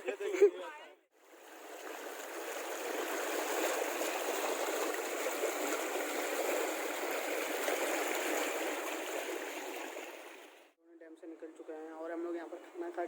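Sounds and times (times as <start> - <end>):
water rushing: 1.2 - 10.7.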